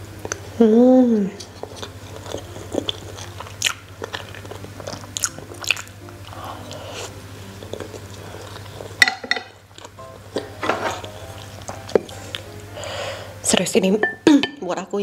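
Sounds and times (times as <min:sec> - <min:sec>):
close chewing with mouth sounds: 0:01.1 - 0:13.0.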